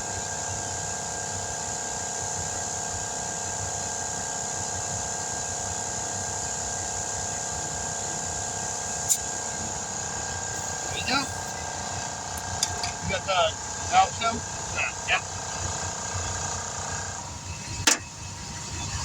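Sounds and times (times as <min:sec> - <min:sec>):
mechanical drone: 0:09.3 - 0:19.0.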